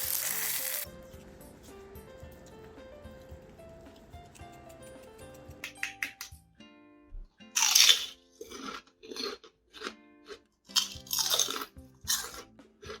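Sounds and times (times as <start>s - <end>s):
crunchy chips being bitten: 0.0s - 0.9s, 7.6s - 13.0s
background music: 0.0s - 13.0s
chewing crunches: 7.6s - 13.0s.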